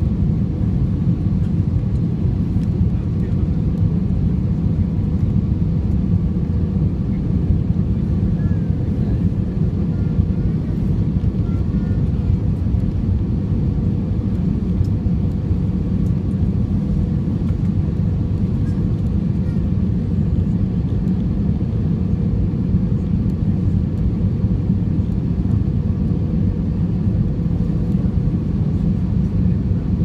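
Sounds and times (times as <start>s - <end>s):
airliner cabin engine roar: 0.0s - 30.0s.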